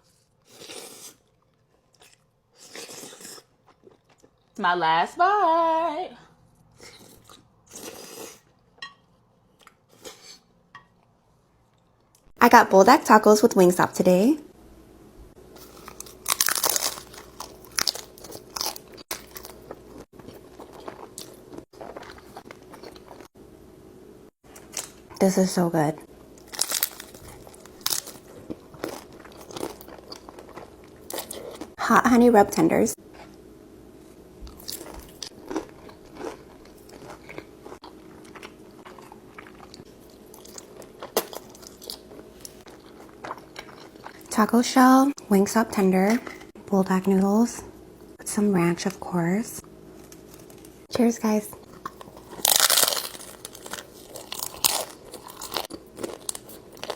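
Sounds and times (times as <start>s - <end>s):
chewing: 0.0s - 4.6s, 15.6s - 23.3s, 26.4s - 31.8s, 34.5s - 44.3s, 51.7s - 56.9s
faint steady hum: 0.0s - 56.9s
crunching taco shell: 15.6s - 23.3s, 26.4s - 31.8s, 51.7s - 56.9s.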